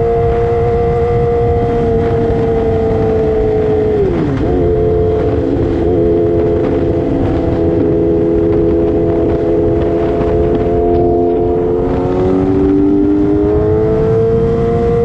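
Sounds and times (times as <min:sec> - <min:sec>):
motorcycle engine high revs: 0:00.0 - 0:15.0
wind rumble: 0:00.0 - 0:15.0.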